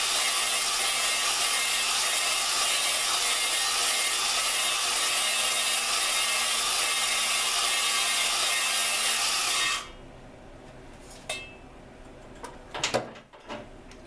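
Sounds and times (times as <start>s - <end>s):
drill grinding valve: 0.0s - 10.0s.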